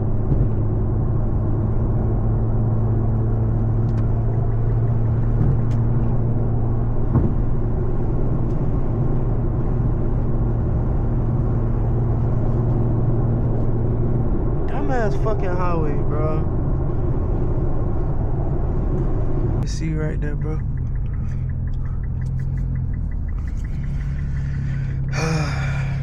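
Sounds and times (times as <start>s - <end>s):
car engine drone: 0.0s - 26.0s
road and tyre noise: 0.0s - 26.0s
faint clicks: 20.4s - 25.1s.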